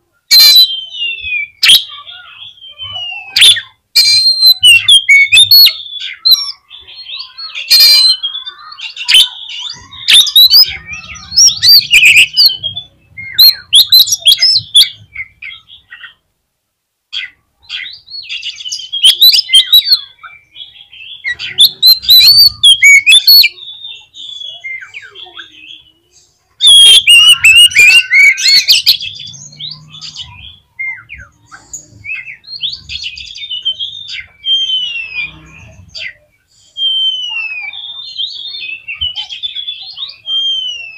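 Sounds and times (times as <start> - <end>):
bird singing whistled phrases: 0.3 - 16.2, 17.2 - 40.9.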